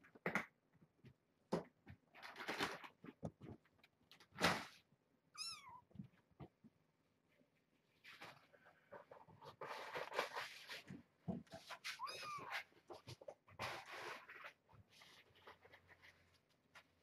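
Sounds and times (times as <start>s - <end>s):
rustling and scratching: 1.8s - 4.9s, 7.3s - 17.0s.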